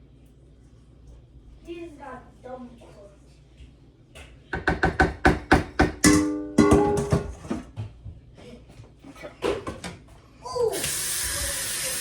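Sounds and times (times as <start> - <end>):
kitchen knocks: 4.6 - 8.0
tap water running into sink: 10.8 - 12.0.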